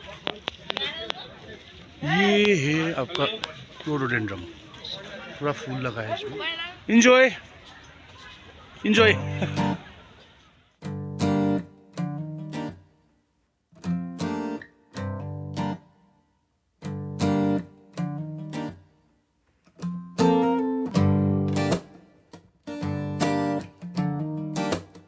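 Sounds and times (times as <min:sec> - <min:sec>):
acoustic guitar strumming chords: 0:08.9 - 0:09.9, 0:10.8 - 0:13.2, 0:13.8 - 0:16.2, 0:16.8 - 0:19.1, 0:19.7 - 0:25.0.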